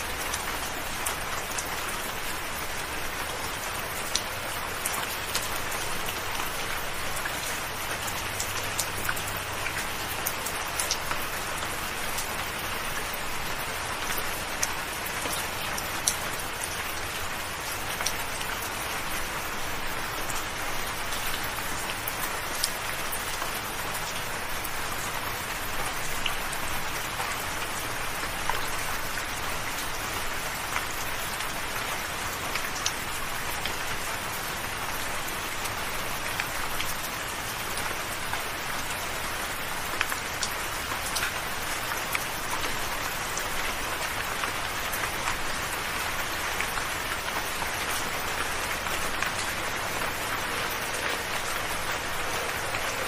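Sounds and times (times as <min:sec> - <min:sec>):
raindrops ticking: 0:00.0 - 0:53.0
soft rain falling: 0:00.0 - 0:53.0.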